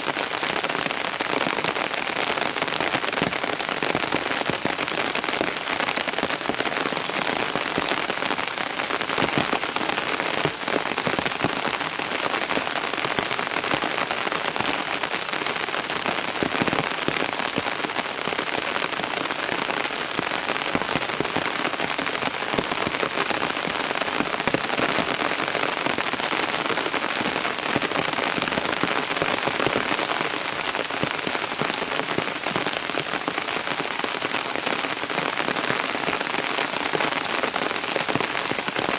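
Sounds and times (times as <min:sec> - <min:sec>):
rain pattering on surfaces: 0:00.0 - 0:38.9.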